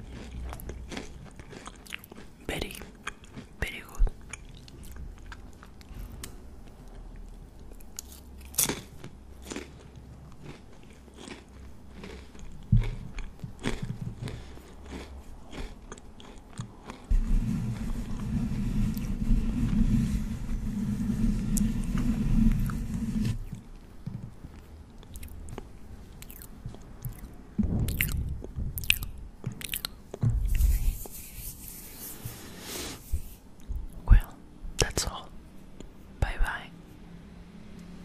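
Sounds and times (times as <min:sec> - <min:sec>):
crunchy snack chewing: 0:00.0 - 0:03.6, 0:07.7 - 0:17.1, 0:24.6 - 0:27.3, 0:27.9 - 0:30.0
hands rubbing microphone grille: 0:17.1 - 0:23.6, 0:30.4 - 0:33.4.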